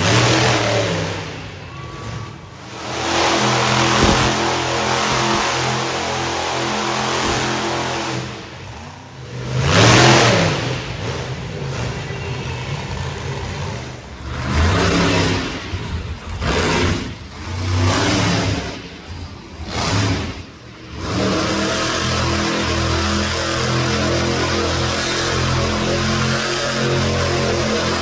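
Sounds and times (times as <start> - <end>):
truck engine revving: 0.0 - 28.0.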